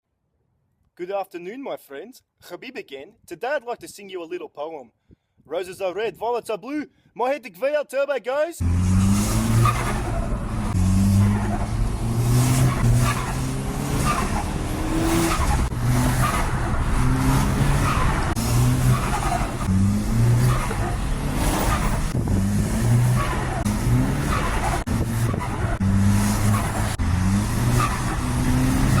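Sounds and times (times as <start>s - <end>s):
car engine revving in blips: 8.6s - 29.0s.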